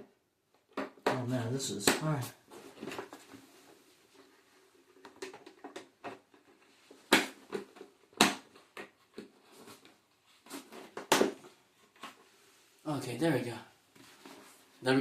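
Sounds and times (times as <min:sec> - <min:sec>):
loud plastic snaps: 0:07.1 - 0:09.0.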